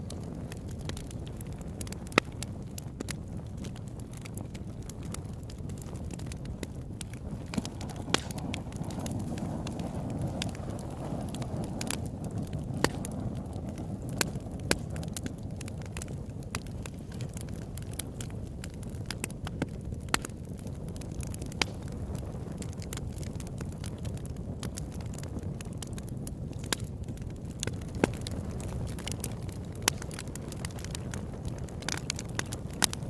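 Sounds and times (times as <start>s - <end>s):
fire crackling and popping: 0.0s - 33.0s.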